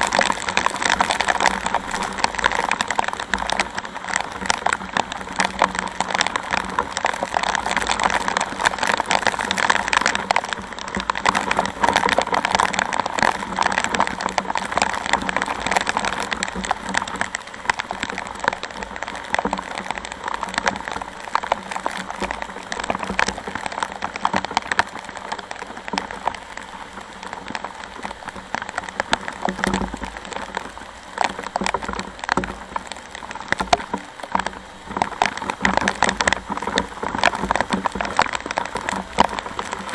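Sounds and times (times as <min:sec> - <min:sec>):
heavy rain patter: 0:00.0 - 0:39.9.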